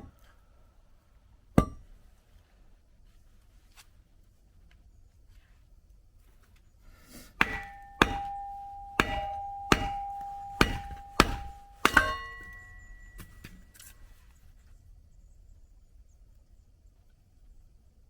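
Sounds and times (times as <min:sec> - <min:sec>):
splitting tool striking wood: 0:07.4 - 0:12.7.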